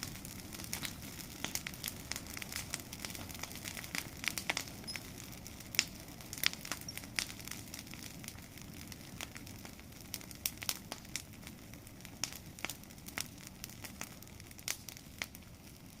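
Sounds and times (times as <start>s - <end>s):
bonfire crackling: 0.0s - 16.0s
sharp fire pops: 0.0s - 16.0s.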